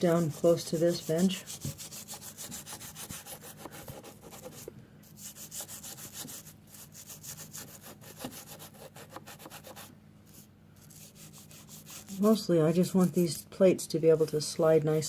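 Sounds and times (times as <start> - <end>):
brush scrubbing metal: 0.0 - 3.5, 10.8 - 13.2.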